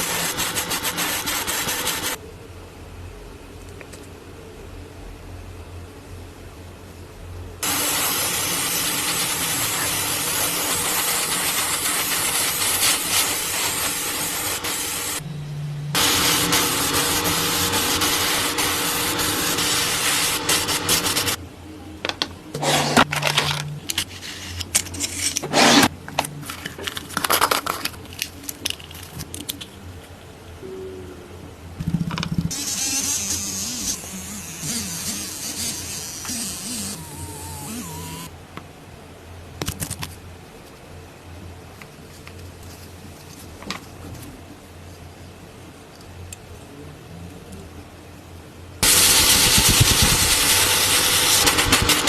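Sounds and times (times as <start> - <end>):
power tool running: 0.0 - 2.2, 7.6 - 15.2, 16.0 - 21.4, 32.5 - 38.3, 48.8 - 52.0.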